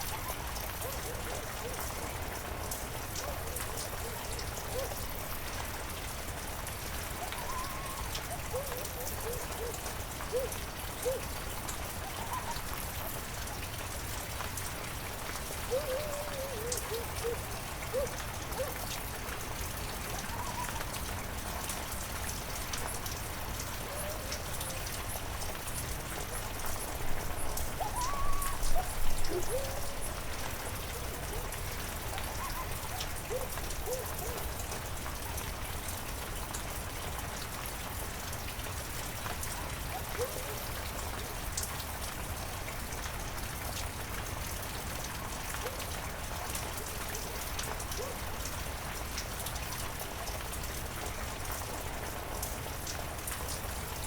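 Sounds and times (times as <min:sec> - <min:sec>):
heavy rain pattering: 0:00.0 - 0:54.0
animal warbling calls: 0:12.0 - 0:12.6, 0:27.8 - 0:31.5.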